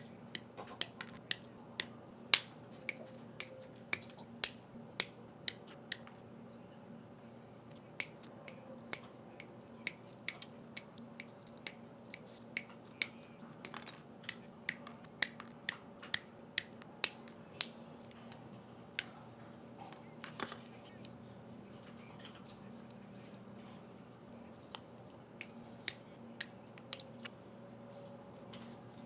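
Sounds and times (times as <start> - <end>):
faint steady hum: 0.0 - 29.0
plastic model parts clicking: 12.6 - 17.7.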